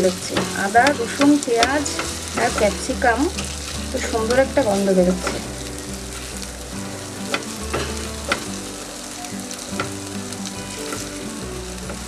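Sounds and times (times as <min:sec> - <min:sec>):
vegetables sizzling in hot oil: 0:00.0 - 0:12.0
spatula clicking on pan: 0:00.1 - 0:03.6.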